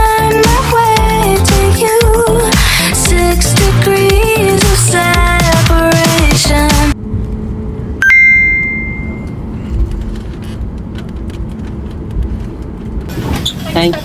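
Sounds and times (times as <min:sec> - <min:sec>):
vehicle cabin rumble: 0:00.0 - 0:14.0
bright electronic chime: 0:08.0 - 0:09.4.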